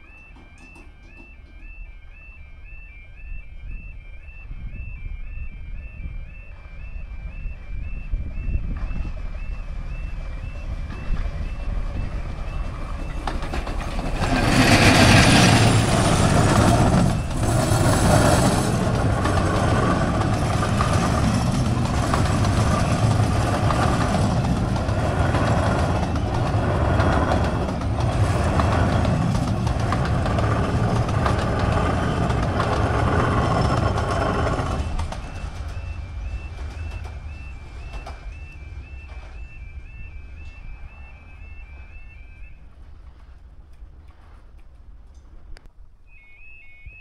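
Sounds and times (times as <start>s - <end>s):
miniature locomotive passing: 8.4s - 44.4s
wheels clattering: 10.5s - 45.5s
coaches rumbling past: 10.7s - 42.5s.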